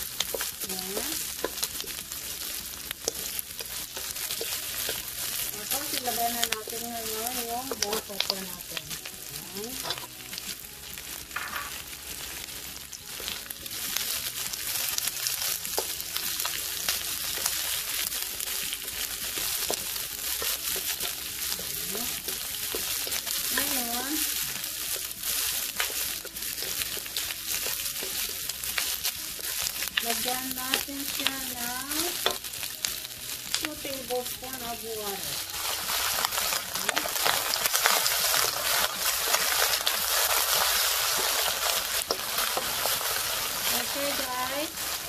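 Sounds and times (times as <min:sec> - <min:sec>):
vegetables sizzling in a pan: 0:00.0 - 0:45.0
spatula tapping and scraping: 0:00.2 - 0:05.9, 0:18.6 - 0:31.4, 0:36.2 - 0:43.2.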